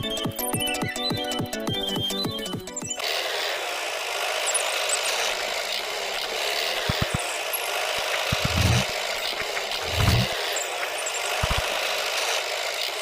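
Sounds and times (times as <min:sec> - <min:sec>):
small motor running: 0:02.8 - 0:13.0.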